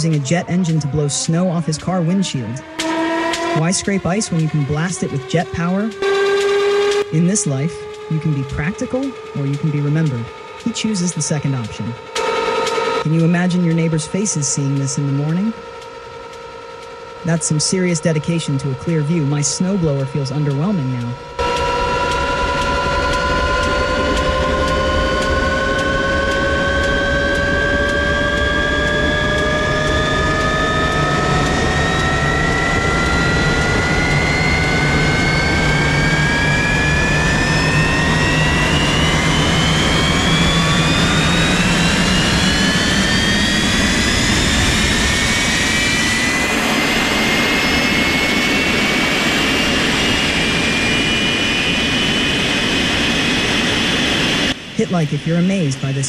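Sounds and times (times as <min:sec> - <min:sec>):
jet engine spooling up: 0:00.0 - 0:56.0.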